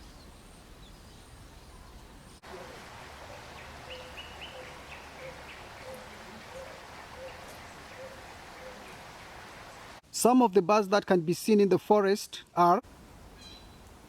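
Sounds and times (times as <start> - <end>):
forest birds calling: 0.0 - 10.0, 13.3 - 14.0
steady background hiss: 0.0 - 14.0.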